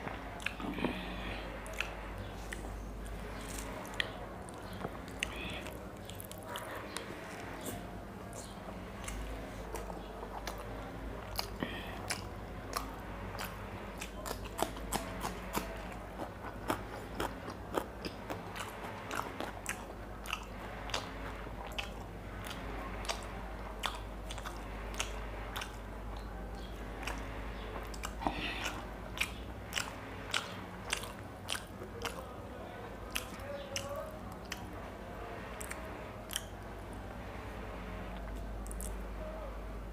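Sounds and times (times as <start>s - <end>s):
person chewing crunchy food: 0.0s - 34.8s, 35.5s - 36.6s, 38.2s - 39.0s
mouth clicks: 35.6s - 36.6s.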